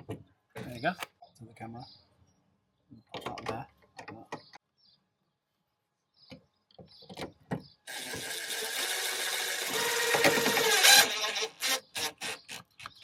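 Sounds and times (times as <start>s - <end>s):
power tool motor whining: 7.9s - 12.7s.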